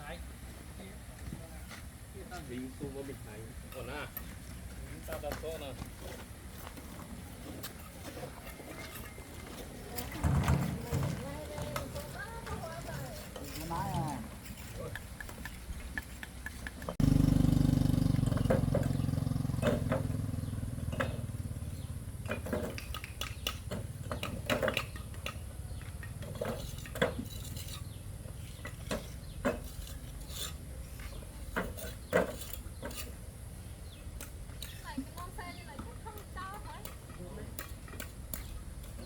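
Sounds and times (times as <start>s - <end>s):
hard objects clicking and knocking: 22.2s - 27.8s.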